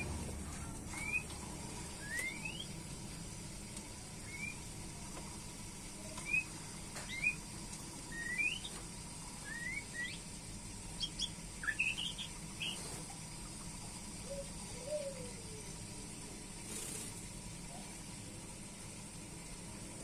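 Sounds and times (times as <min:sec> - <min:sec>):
bird whistling rising notes: 0:02.0 - 0:02.7, 0:04.2 - 0:04.6, 0:07.1 - 0:07.4, 0:08.1 - 0:08.7, 0:09.4 - 0:10.2, 0:11.0 - 0:12.8.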